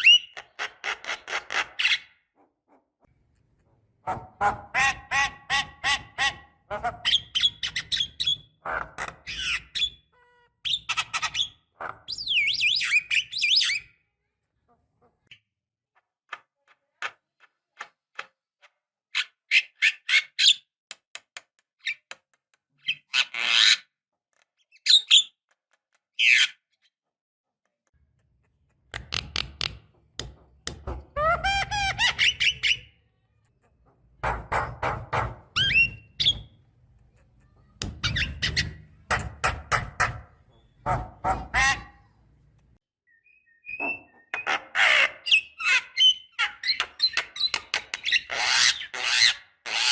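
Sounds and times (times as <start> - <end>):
bird clicking chatter and squawks: 0.0 - 2.1, 44.4 - 49.9.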